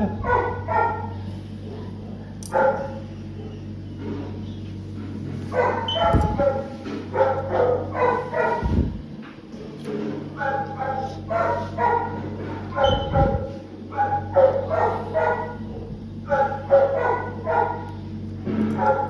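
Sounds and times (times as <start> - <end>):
dog barking and yelping: 0.0 - 1.2, 2.5 - 3.6, 5.5 - 8.9, 10.3 - 15.7, 16.3 - 17.9, 18.8 - 19.0.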